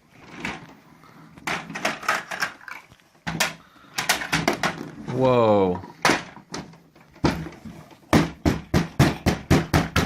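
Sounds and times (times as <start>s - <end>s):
plastic toys clicking and knocking: 1.4s - 5.1s.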